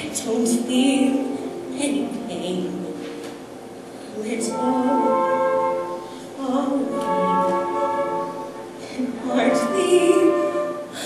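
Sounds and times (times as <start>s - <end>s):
soft instrumental accompaniment: 0.0s - 11.0s
woman singing a ballad: 9.0s - 11.0s.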